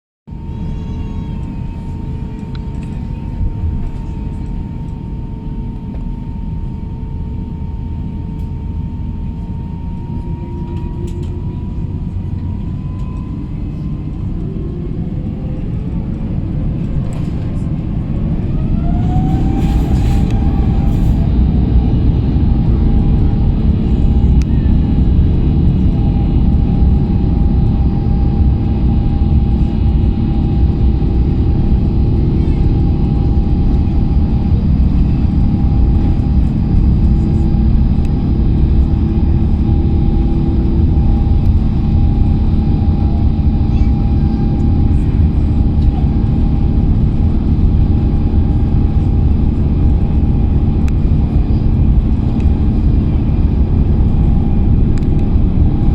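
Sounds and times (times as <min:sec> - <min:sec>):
takeoff roll rumble: 0:00.3 - 0:55.9
jet engines spooling up: 0:09.5 - 0:55.9.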